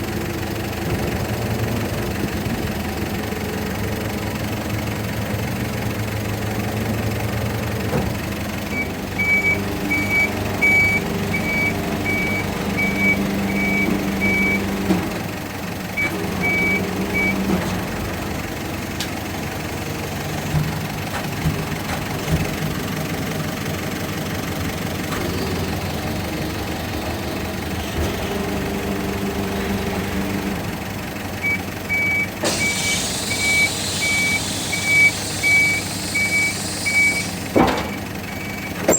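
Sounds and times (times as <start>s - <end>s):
garbage truck engine and hydraulics: 0.0s - 38.9s
high warning beeps: 8.8s - 14.7s.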